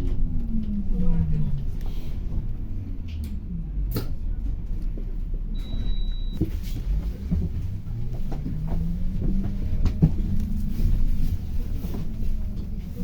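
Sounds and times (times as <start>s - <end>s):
bus engine and road rumble: 0.0s - 13.0s
short high beep: 5.6s - 6.4s
rattles and knocks: 6.4s - 12.9s.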